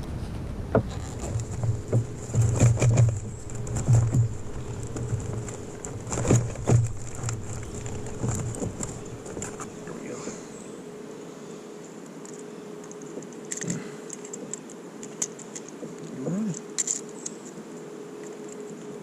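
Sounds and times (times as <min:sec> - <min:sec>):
faint high whine: 0:00.0 - 0:19.0
handling knocks and clicks: 0:00.8 - 0:09.9, 0:12.2 - 0:17.6.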